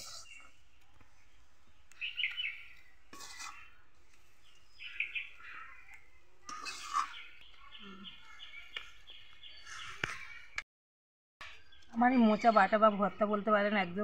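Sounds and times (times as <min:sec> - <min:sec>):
metal spatula scraping wok: 0:00.0 - 0:00.6, 0:02.5 - 0:05.8, 0:06.4 - 0:07.4
small birds chirping: 0:00.0 - 0:10.6, 0:11.4 - 0:14.0.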